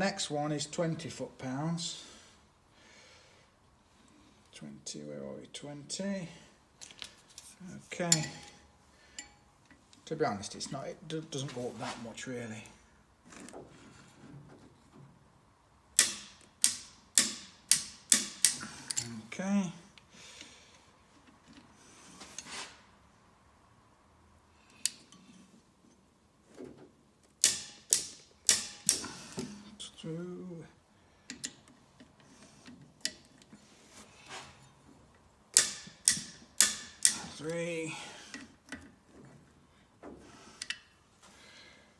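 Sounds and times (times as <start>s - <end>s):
torque wrench clicking: 16.0s - 19.1s, 27.4s - 29.1s, 35.5s - 37.4s
socket wrench clicks and taps: 35.6s - 37.2s.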